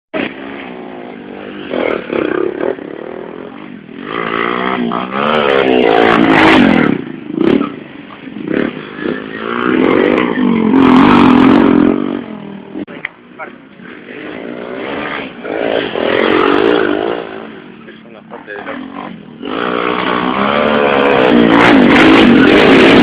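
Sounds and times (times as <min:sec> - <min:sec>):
motorcycle engines revving: 0:00.2 - 0:23.0.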